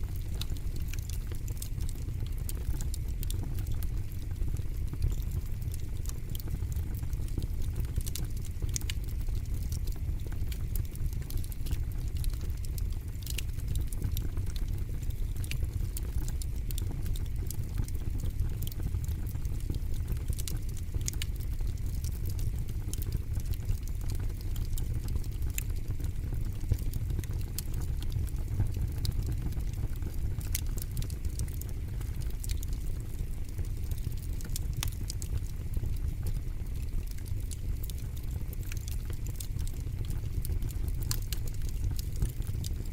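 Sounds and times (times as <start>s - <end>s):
fire crackling and popping: 0.0s - 42.9s.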